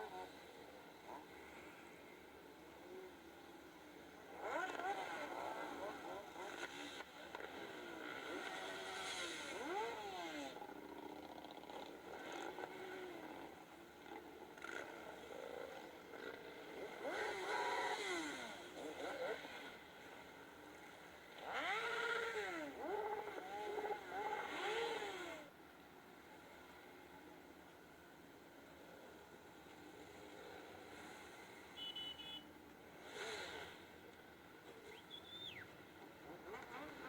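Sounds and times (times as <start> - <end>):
motorcycle engine revving: 2.7 - 25.5, 29.6 - 37.0.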